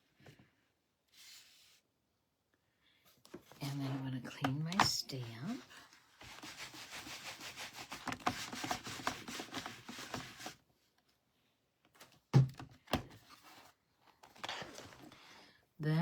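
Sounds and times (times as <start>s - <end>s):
paper rubbing on table: 5.5s - 10.6s.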